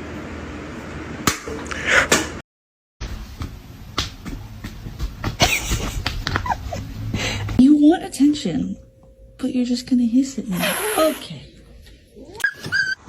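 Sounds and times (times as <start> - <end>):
sharp taps and slaps: 3.4 - 6.5
cat hiss: 10.6 - 11.4.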